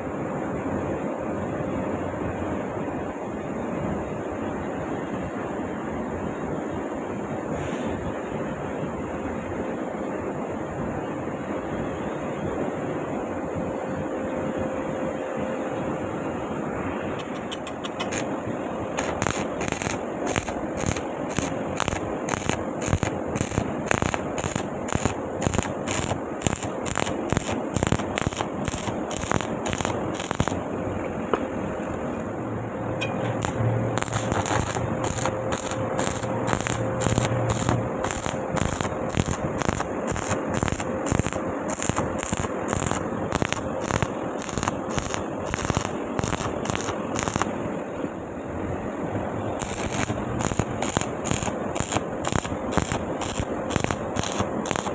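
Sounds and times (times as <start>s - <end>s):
arc welding crackle: 17.2s - 30.8s, 33.2s - 47.9s, 49.6s - 54.9s.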